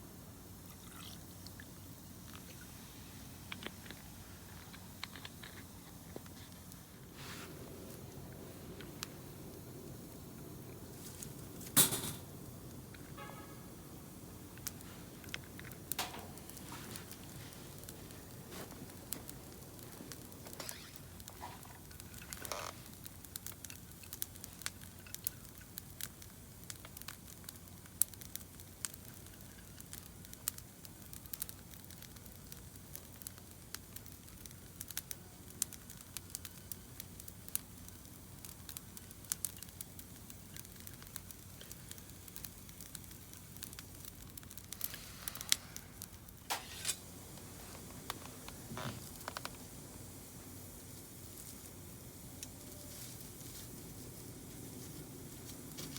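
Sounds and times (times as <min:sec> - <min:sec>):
low fire hiss: 0:00.0 - 0:55.9
campfire crackling and popping: 0:00.4 - 0:55.9
soft rustling: 0:05.7 - 0:09.0, 0:10.9 - 0:11.8, 0:16.1 - 0:21.7.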